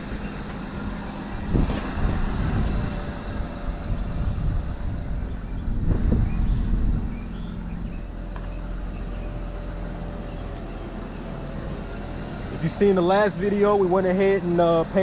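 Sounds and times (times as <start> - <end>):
car engine and road rumble: 0.0 - 15.0
wind on microphone: 1.3 - 8.2.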